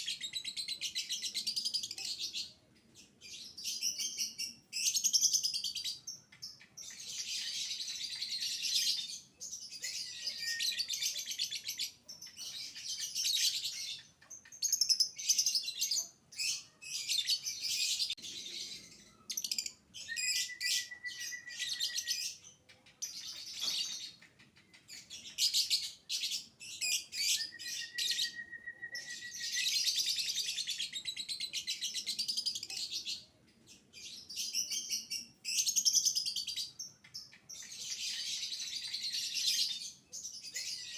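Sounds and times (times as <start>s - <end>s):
whistled bird notes: 9.8s - 14.0s, 16.5s - 22.4s, 25.0s - 32.6s.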